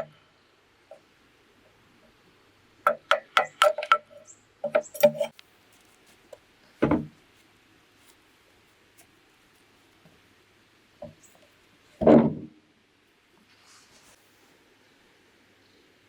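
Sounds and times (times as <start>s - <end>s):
ringing knocks on bamboo: 2.9s - 5.3s
dull heavy thump: 6.8s - 7.2s.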